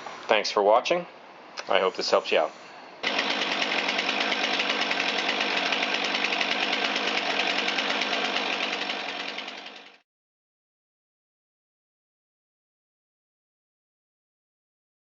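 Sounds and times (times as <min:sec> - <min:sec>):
chainsaw engine running: 0:03.0 - 0:10.0.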